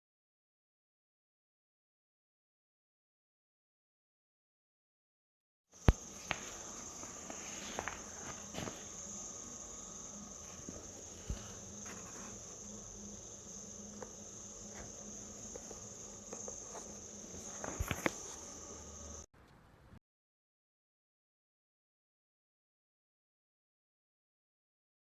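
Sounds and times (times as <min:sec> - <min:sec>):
insects trilling: 0:05.8 - 0:19.3.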